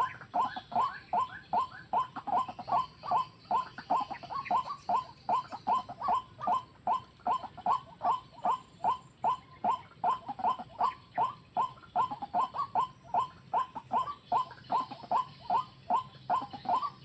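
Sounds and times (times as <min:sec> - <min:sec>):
bird short repeated calls: 0:00.0 - 0:17.0.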